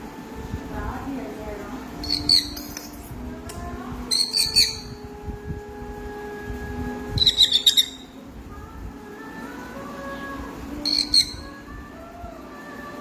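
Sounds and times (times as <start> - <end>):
parrot shrill raspy chirps: 7.2 - 8.1.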